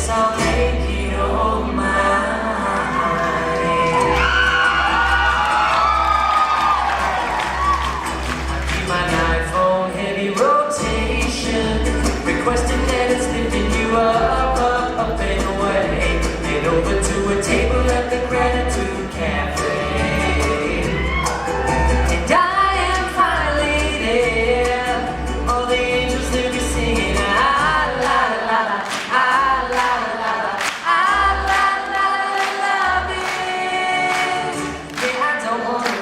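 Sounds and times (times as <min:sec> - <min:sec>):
voices singing together: 0:00.0 - 0:07.9, 0:08.6 - 0:36.0
bass line: 0:00.0 - 0:28.6
percussion: 0:02.6 - 0:36.0.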